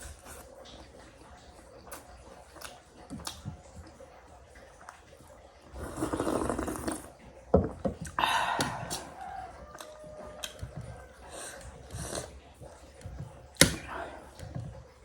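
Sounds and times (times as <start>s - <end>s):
eating sounds: 0.0s - 15.0s
person slurping soup: 5.7s - 7.2s, 8.0s - 10.6s, 11.2s - 13.0s.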